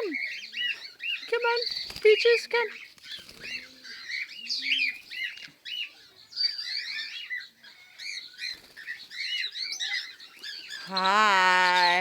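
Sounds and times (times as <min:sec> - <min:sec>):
cockatiels chirping and calling: 0:02.5 - 0:10.9.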